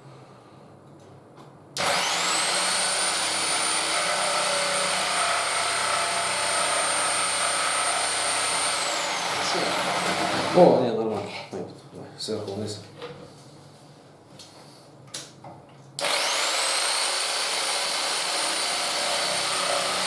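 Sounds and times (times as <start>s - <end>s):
power tool motor whining: 1.8s - 10.6s, 16.0s - 20.0s.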